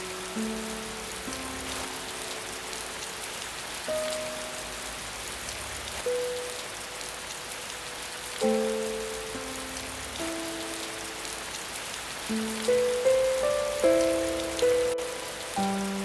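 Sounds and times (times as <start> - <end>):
slow sparse music: 0.0 - 16.0
steady rain: 0.0 - 16.0.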